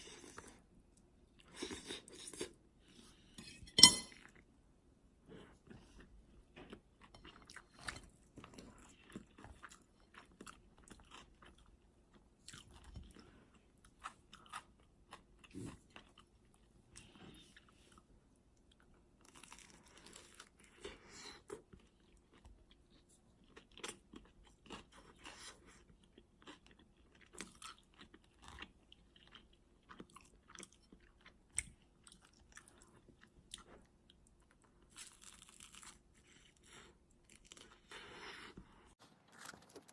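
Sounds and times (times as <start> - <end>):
crunching bites and chewing: 19.2 - 20.9, 23.4 - 38.2.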